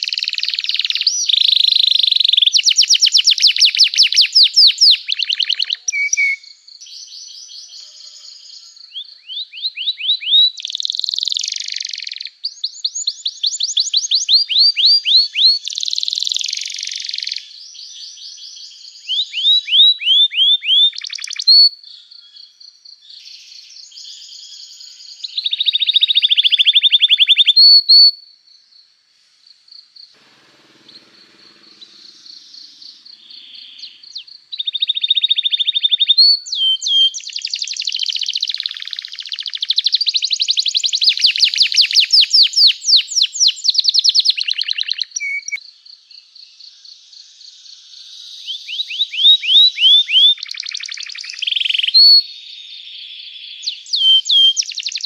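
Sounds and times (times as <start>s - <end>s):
canary singing: 0.0s - 17.5s, 30.2s - 45.6s, 48.5s - 52.3s, 53.4s - 55.0s.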